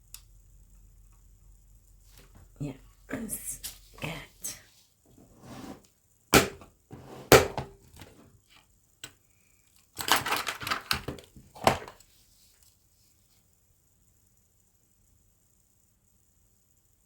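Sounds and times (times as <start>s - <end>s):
sharp knocks on work surface: 6.4s - 6.7s, 7.3s - 7.7s.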